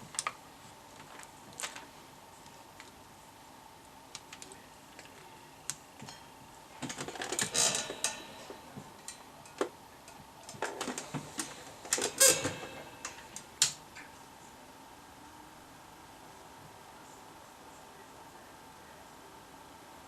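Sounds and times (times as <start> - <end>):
small hard objects clattering: 0.1 - 1.9, 6.8 - 9.7.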